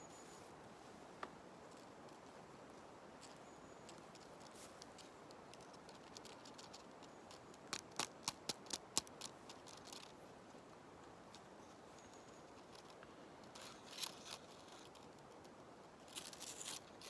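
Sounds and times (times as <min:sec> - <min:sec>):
steady soft hiss: 0:00.0 - 0:17.0
dry leaves crackling: 0:03.2 - 0:10.1, 0:12.5 - 0:15.1, 0:16.0 - 0:17.0.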